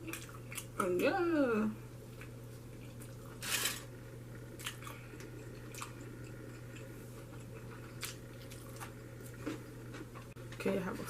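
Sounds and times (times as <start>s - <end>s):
person chewing food: 0.0s - 0.8s, 1.9s - 3.5s, 4.1s - 10.3s
steady low hum: 0.0s - 11.0s.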